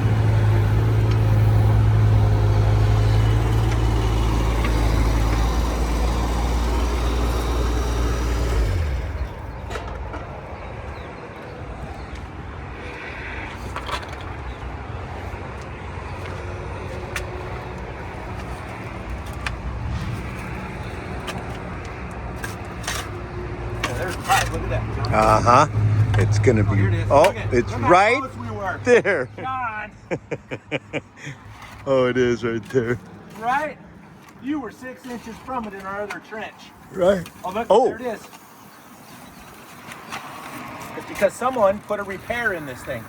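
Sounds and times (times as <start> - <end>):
excavator engine running: 0.0 - 28.9.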